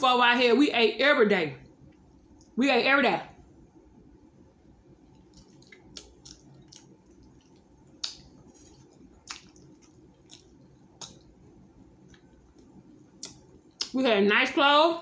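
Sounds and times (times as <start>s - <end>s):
person chewing food: 4.9s - 14.0s.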